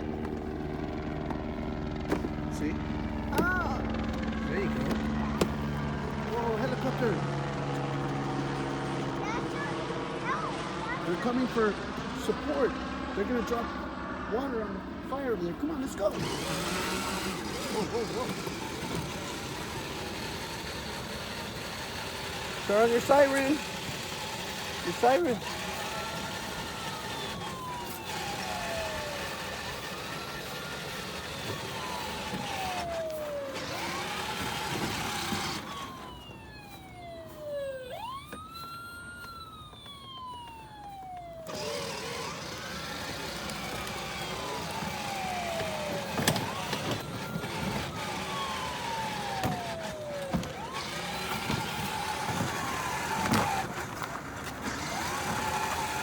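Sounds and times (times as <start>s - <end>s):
ride-on toy motor and wheels: 0.0s - 56.0s
toy fire truck electronic siren: 15.9s - 56.0s.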